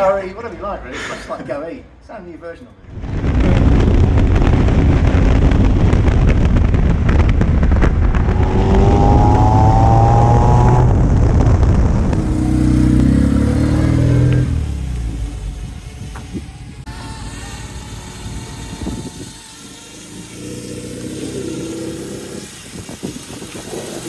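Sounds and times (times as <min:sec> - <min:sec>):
car engine accelerating: 0:03.0 - 0:15.9.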